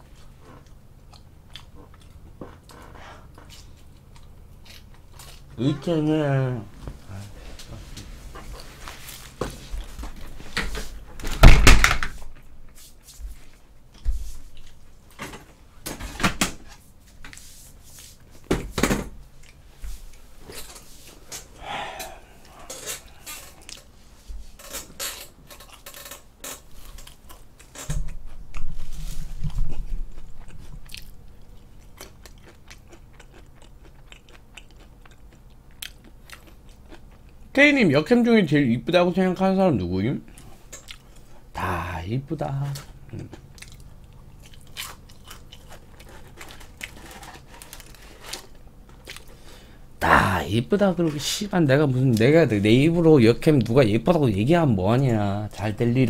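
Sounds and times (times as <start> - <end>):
chewing crunchy fried chicken: 0.0 - 5.6, 21.4 - 24.0, 25.5 - 37.6, 40.3 - 41.8, 42.6 - 51.2.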